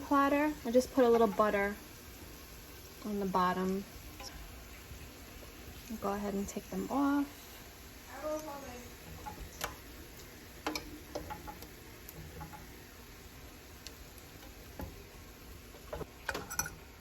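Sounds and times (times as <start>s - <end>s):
utensils clicking against cookware: 9.1s - 12.8s, 15.8s - 17.0s.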